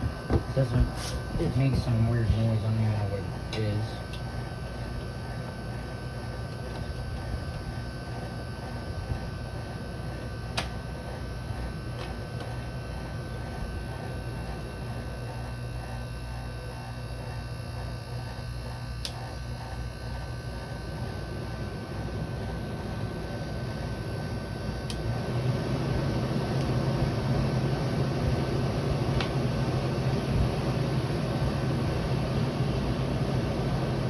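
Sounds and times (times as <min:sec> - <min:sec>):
air conditioner humming: 0:00.0 - 0:34.0.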